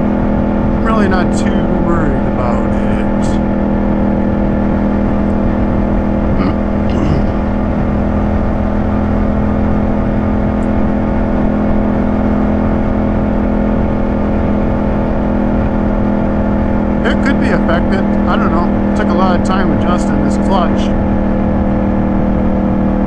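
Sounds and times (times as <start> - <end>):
motorcycle engine cruising: 0.0 - 23.0
wind and road noise: 0.0 - 23.0.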